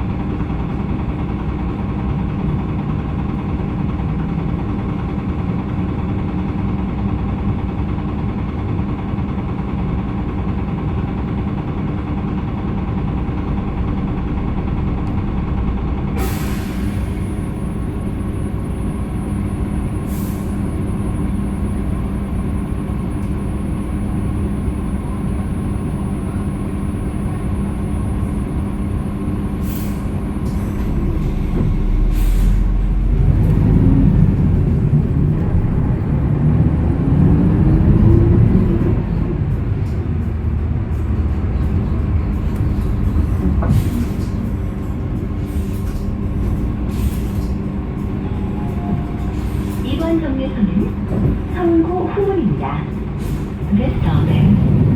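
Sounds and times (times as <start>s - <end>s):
bus engine from inside cabin: 0.0s - 54.9s.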